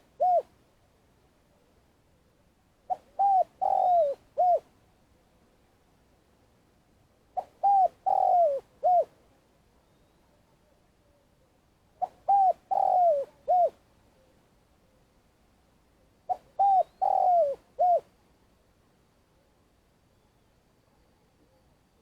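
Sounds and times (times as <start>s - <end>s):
dove cooing: 0.0s - 0.5s, 2.9s - 4.7s, 7.4s - 9.1s, 12.0s - 13.8s, 16.3s - 18.1s.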